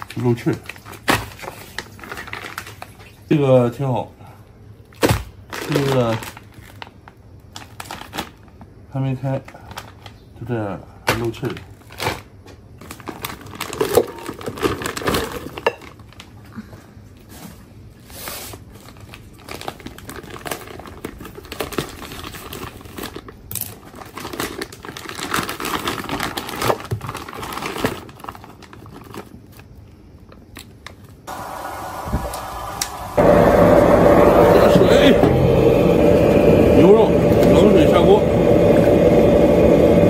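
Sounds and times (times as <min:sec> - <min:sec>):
plastic packs crinkling: 0:00.0 - 0:03.4, 0:04.9 - 0:10.4, 0:11.1 - 0:16.4, 0:18.6 - 0:31.2.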